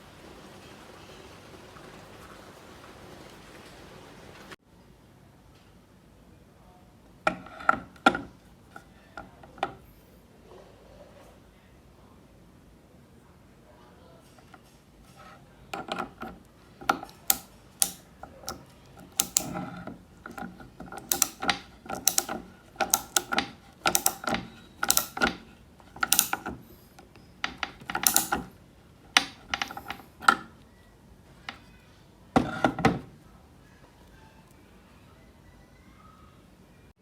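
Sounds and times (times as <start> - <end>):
metallic clicks of hand wrench: 16.9 - 19.6, 20.2 - 25.4, 26.0 - 26.6, 27.4 - 28.5, 29.2 - 30.4.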